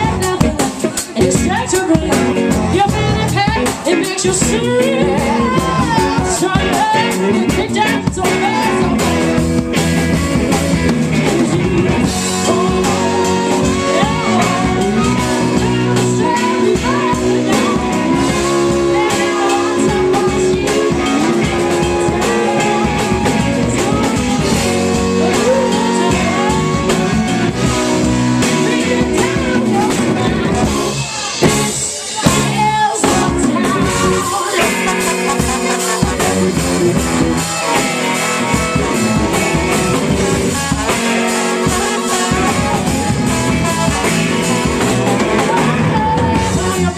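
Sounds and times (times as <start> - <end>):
live rock band playing: 0.0 - 46.9.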